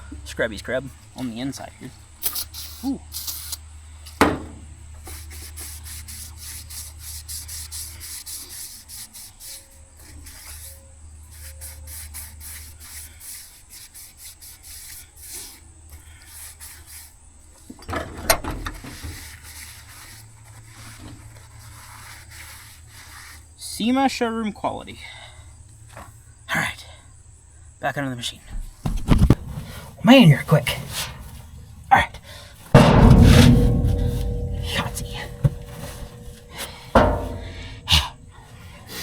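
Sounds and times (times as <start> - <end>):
metal being scrubbed: 29.4 - 39.0
sharp knock: 32.8 - 38.6.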